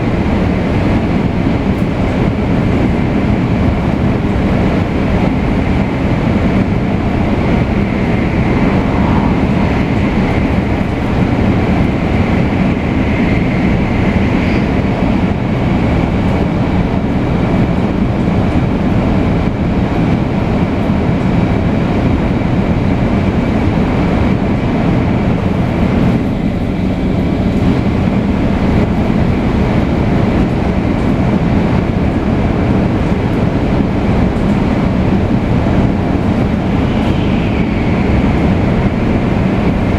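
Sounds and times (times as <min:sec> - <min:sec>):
train rolling rumble: 0:00.0 - 0:39.9
high whine: 0:02.8 - 0:14.9, 0:35.0 - 0:39.9.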